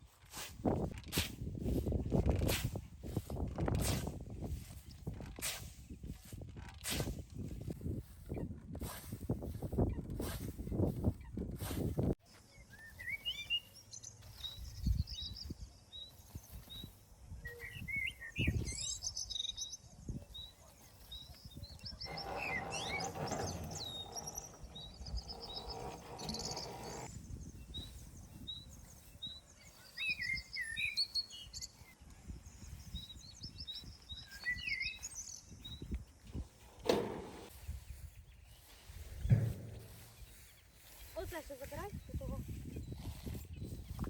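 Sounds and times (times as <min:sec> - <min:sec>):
songbirds singing: 0:12.2 - 0:44.0
low thumps: 0:39.0 - 0:40.6.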